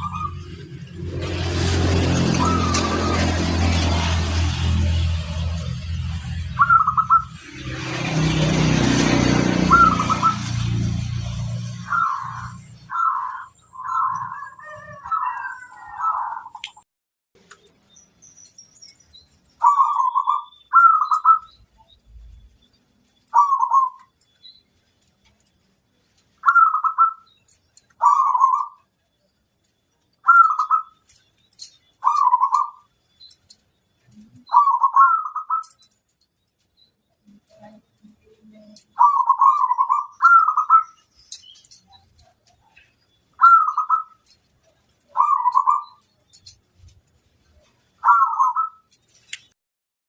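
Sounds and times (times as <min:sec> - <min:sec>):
dove cooing: 0:00.0 - 0:00.6, 0:01.8 - 0:03.6, 0:06.6 - 0:07.3, 0:09.3 - 0:10.5, 0:11.7 - 0:16.6, 0:19.6 - 0:21.5, 0:23.3 - 0:24.1, 0:28.0 - 0:28.8, 0:30.3 - 0:31.0, 0:32.0 - 0:32.8, 0:34.2 - 0:35.9, 0:37.4 - 0:41.0, 0:43.4 - 0:44.3, 0:45.1 - 0:46.1, 0:48.0 - 0:48.8.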